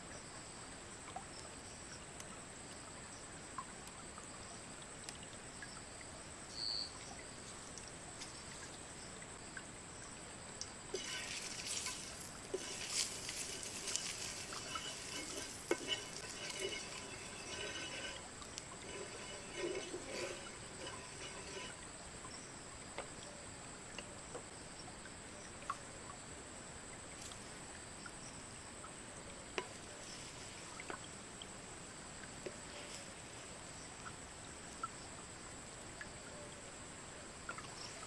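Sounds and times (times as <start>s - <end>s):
crackling: 10.9s - 21.9s.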